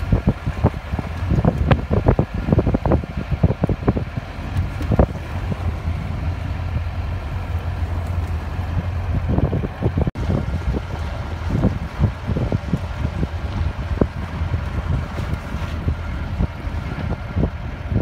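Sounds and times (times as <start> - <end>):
vehicle engine drone: 0.0 - 18.0
wind on microphone: 0.0 - 18.0.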